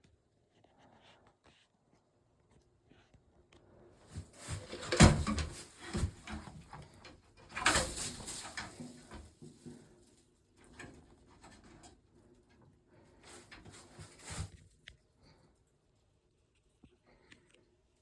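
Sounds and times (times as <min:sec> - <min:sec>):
rustles and clicks: 0:04.1 - 0:12.0, 0:13.1 - 0:15.0.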